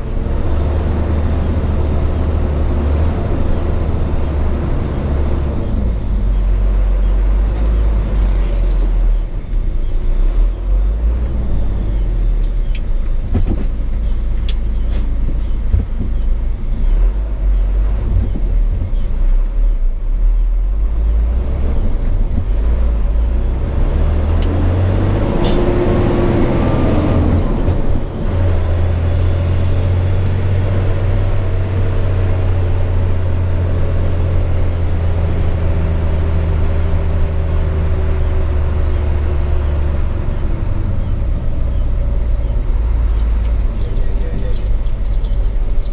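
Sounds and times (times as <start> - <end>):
truck diesel engine drone: 0.0 - 45.9.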